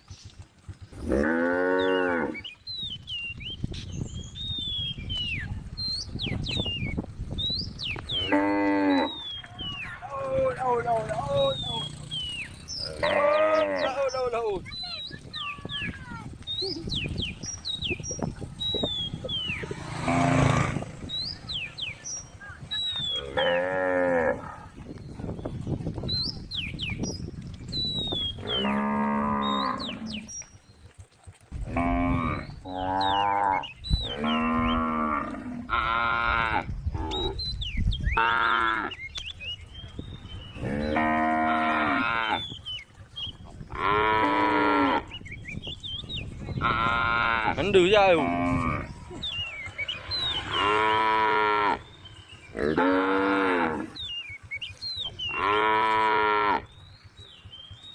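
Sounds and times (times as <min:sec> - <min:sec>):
cow mooing: 0:01.0 - 0:02.4, 0:08.2 - 0:09.2, 0:12.8 - 0:14.1, 0:19.6 - 0:20.9, 0:23.2 - 0:24.7, 0:28.4 - 0:30.3, 0:31.7 - 0:37.4, 0:40.6 - 0:42.4, 0:43.7 - 0:45.1, 0:46.6 - 0:49.0, 0:49.9 - 0:54.0, 0:55.3 - 0:56.7.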